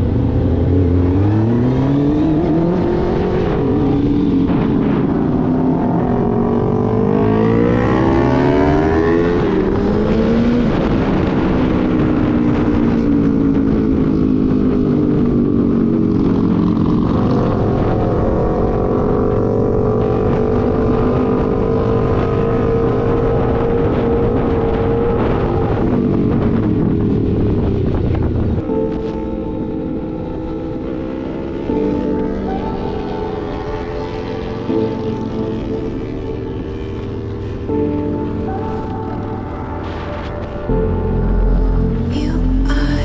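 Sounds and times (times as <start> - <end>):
motorcycle engine revving: 0.0 - 13.7.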